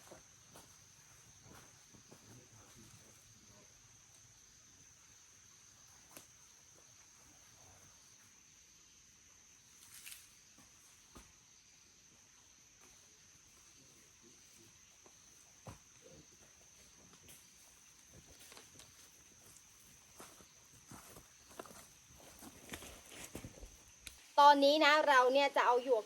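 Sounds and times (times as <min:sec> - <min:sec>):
insects droning: 0:00.0 - 0:26.0
soft rustles: 0:20.2 - 0:23.9.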